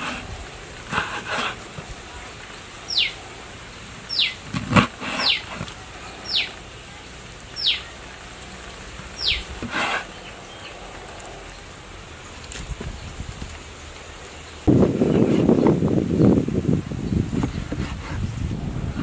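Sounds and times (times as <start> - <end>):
bird whistle sliding down: 5.0 - 5.6.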